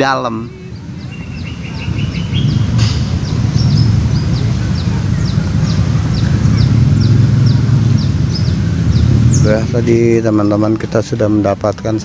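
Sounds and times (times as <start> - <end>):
loud low steady rumble: 0.0 - 12.0
bird repeating high falling calls: 0.4 - 9.6.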